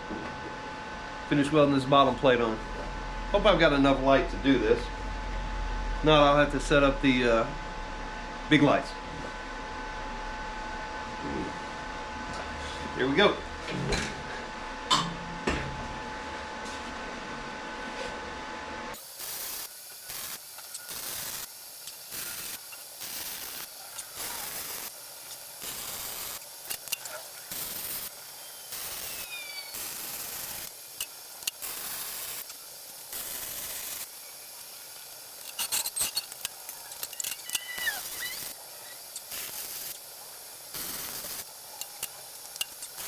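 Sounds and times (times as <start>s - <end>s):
arc welder crackling hiss: 18.9s - 43.0s.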